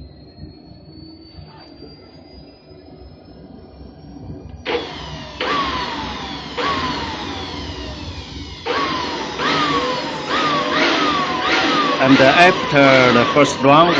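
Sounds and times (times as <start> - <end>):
jet turbine whine: 0.0 - 13.9
jet engine rush: 4.3 - 13.9.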